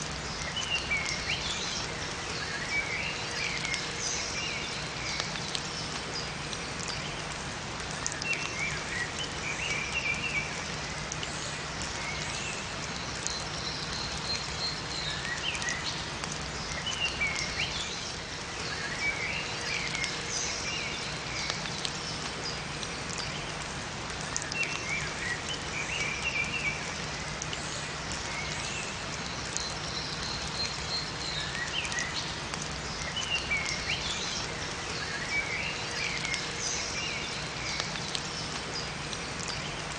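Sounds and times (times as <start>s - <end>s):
rain falling in forest: 0.0s - 39.9s
small birds chirping: 7.9s - 23.6s, 24.2s - 39.9s.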